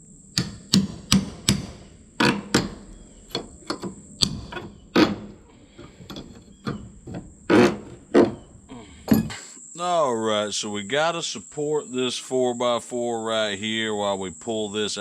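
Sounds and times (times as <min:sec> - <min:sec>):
hammer knocking on wooden boards: 0:00.3 - 0:09.4.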